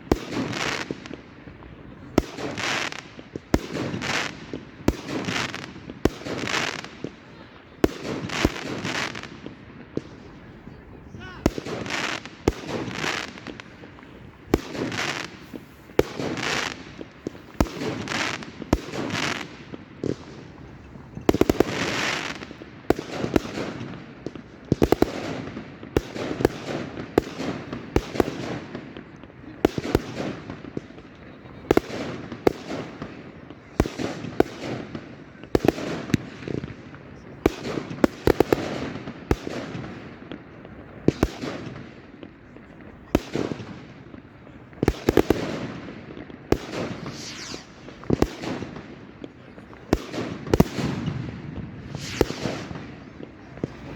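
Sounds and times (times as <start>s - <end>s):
fireworks bangs: 0.0s - 53.9s
fireworks hissing rush: 10.0s - 22.6s, 46.6s - 49.0s, 50.4s - 53.9s.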